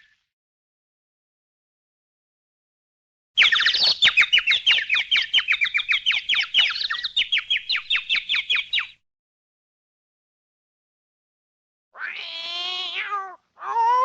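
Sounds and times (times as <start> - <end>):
high bird-like chirps: 3.4 - 9.0.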